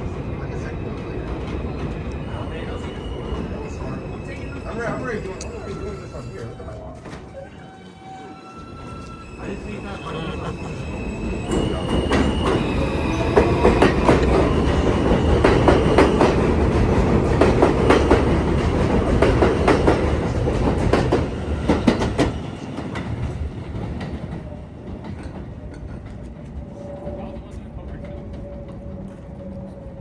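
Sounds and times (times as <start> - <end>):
subway train passing: 0.0 - 30.0.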